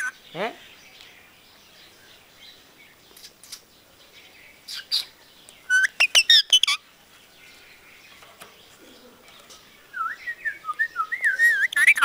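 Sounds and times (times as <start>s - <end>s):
parrot chirping: 5.7s - 6.8s, 11.3s - 12.0s.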